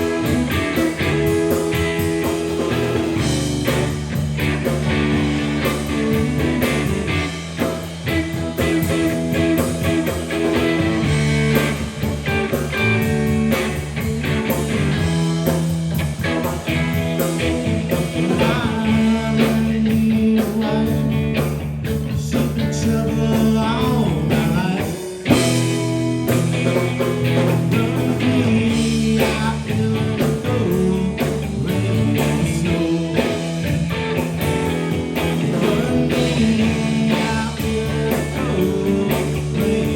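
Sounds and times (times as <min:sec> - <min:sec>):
blues-rock band playing: 0:00.0 - 0:39.9
electric guitar: 0:00.0 - 0:39.9.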